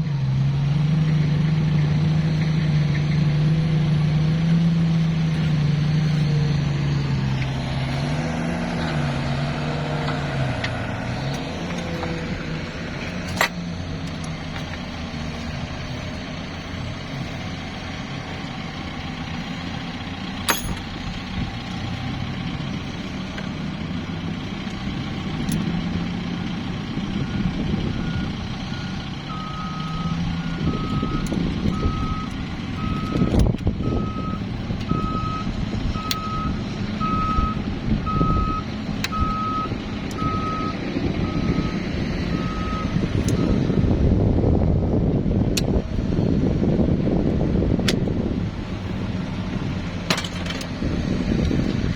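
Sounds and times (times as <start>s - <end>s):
vehicle engine rumbling: 0.0s - 51.9s
reversing alarm beeping: 27.1s - 43.6s.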